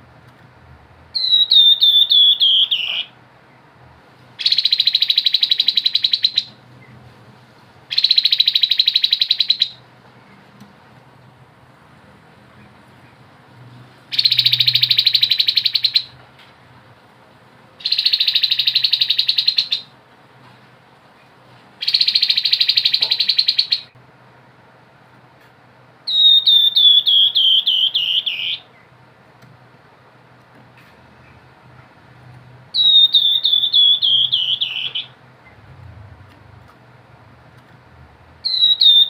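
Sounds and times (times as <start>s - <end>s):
bird whistled notes: 1.2s - 3.1s, 14.1s - 16.1s, 17.8s - 19.9s, 21.8s - 23.9s, 26.1s - 28.6s, 32.8s - 35.2s, 38.4s - 39.0s
bird buzzy trills: 32.7s - 35.7s, 38.4s - 39.0s.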